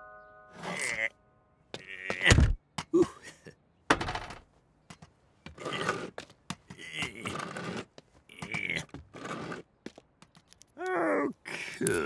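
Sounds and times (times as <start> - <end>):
man mumbling and grunting: 1.8 - 3.5, 10.8 - 12.0
scraping and tearing: 6.8 - 9.7.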